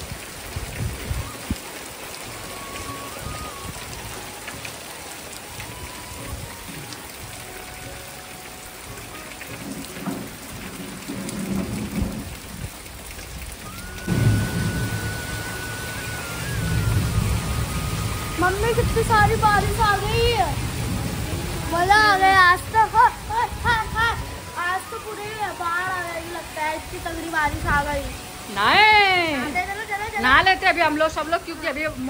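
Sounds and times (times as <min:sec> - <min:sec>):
thunder rumbling: 0:00.0 - 0:08.1, 0:09.6 - 0:25.8
heavy rain pouring: 0:00.0 - 0:32.0.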